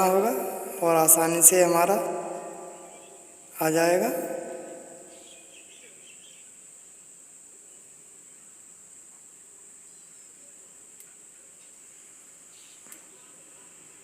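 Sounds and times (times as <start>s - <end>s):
high-pitched background hiss: 0.0s - 14.0s
faint clicks: 11.0s - 11.8s, 12.7s - 13.2s.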